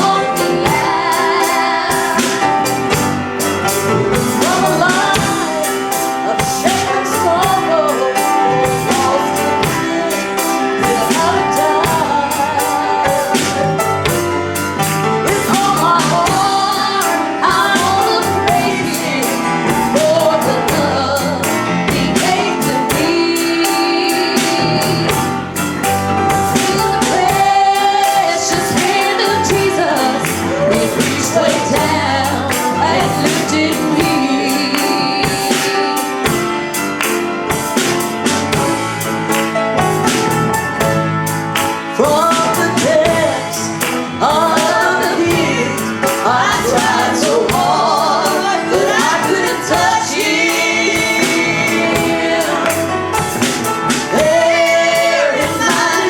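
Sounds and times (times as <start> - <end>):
woman singing gospel song: 0.0 - 25.6, 26.4 - 36.7, 41.9 - 56.0
live band playing: 0.0 - 56.0.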